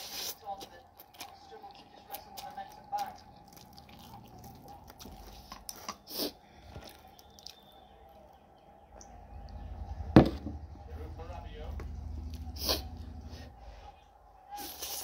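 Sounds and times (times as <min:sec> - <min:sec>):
chewing noodles: 0:00.0 - 0:08.4.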